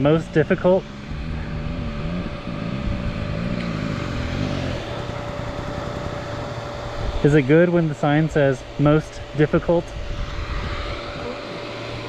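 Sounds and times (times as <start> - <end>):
dirt bike engine revving: 0.0 - 12.0
thin steady whine: 0.0 - 12.0
wind noise: 9.0 - 11.3.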